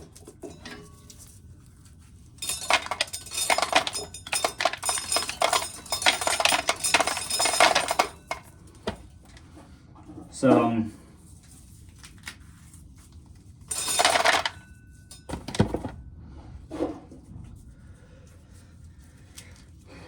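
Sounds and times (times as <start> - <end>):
corn kernels rattling into a pail: 2.4 - 8.4.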